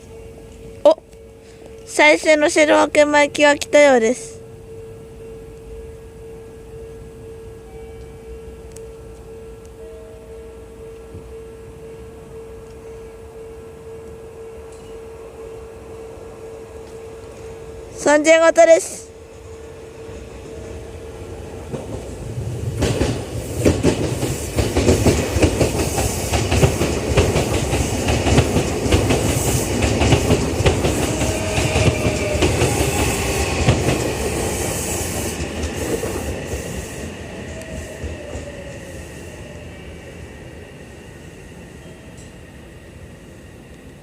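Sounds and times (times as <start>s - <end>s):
train braking whine: 0.0s - 44.0s
train wheels clacking on rail joints: 21.7s - 38.7s.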